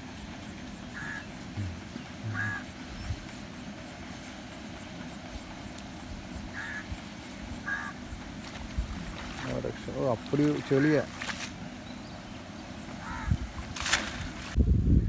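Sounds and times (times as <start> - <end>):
steady background hiss: 0.0 - 14.6
bird calls: 0.6 - 5.7, 6.4 - 9.7, 10.4 - 13.5.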